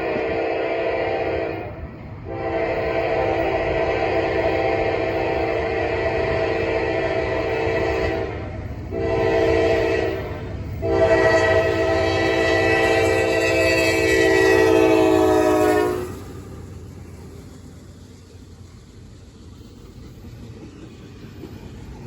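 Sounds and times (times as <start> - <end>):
locomotive air horn blasts: 0.0 - 16.4
moving train rumble: 0.0 - 22.0.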